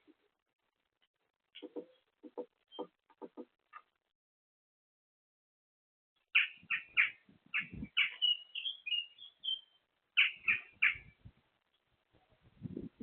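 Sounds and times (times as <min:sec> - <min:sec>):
bird chirping and whistling: 0:06.4 - 0:11.1.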